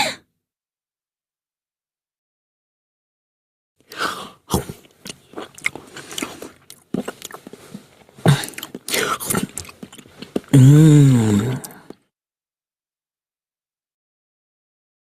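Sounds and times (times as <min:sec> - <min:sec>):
person chewing crunchy food: 0:03.9 - 0:12.0.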